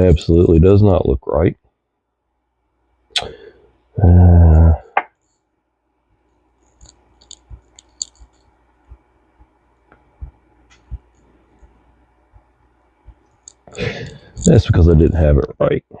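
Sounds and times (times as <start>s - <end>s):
small metal parts clicking: 6.7s - 8.5s.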